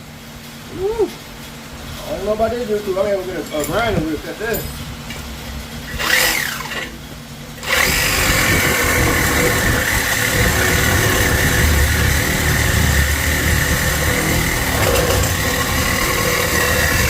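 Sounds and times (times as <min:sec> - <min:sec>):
power cutting tool whine: 0:05.9 - 0:07.0, 0:07.6 - 0:17.0.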